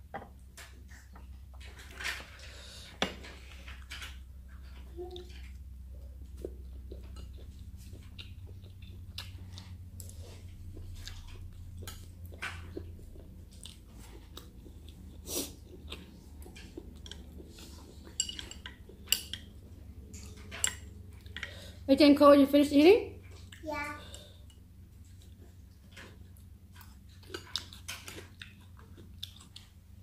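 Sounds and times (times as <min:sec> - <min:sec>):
person chewing wetly: 0:06.3 - 0:20.4, 0:25.1 - 0:30.0.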